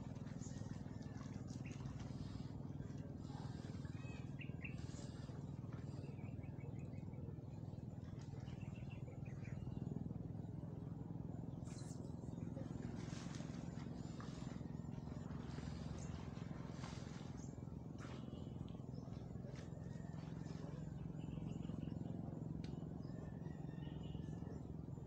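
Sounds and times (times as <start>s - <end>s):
steady low rumble: 0.0s - 23.4s
small birds chirping: 1.5s - 9.9s.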